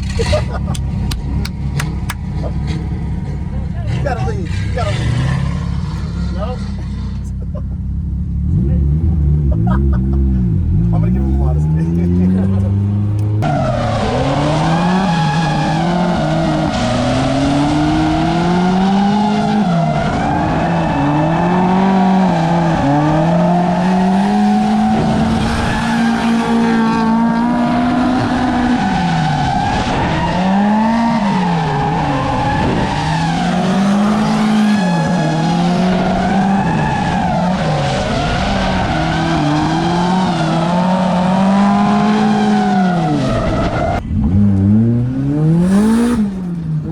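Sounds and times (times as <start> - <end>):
tyres squealing and skidding: 0.0 - 8.0, 8.6 - 46.9
car engine revving: 0.0 - 46.9.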